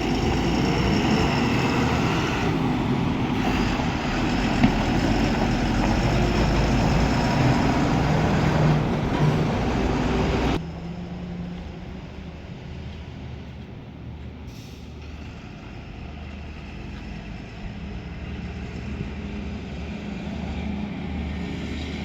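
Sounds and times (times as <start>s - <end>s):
truck engine running: 0.0s - 12.6s.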